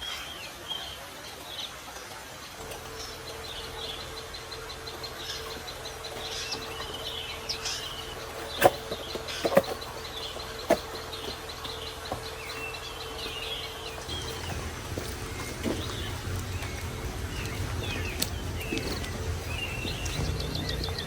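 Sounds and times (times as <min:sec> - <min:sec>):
faint steady hum: 0:00.0 - 0:21.0
small birds chirping: 0:00.0 - 0:21.0.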